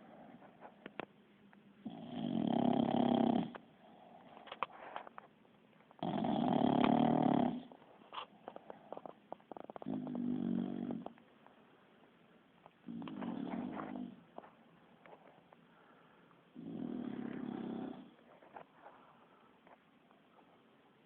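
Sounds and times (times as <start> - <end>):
dog snoring: 1.8 - 4.7, 6.0 - 11.2, 12.8 - 14.3, 16.6 - 18.2.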